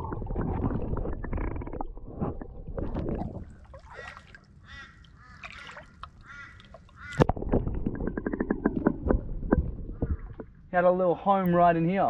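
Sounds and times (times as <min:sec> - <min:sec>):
bird honking calls: 0:03.9 - 0:07.2
sharp clicks or splashes: 0:05.4 - 0:09.7.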